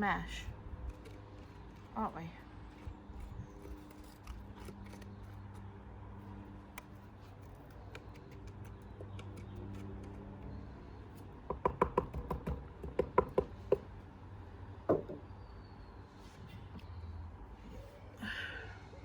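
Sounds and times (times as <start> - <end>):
sharp taps and knocks: 11.4 - 13.9, 14.9 - 15.3.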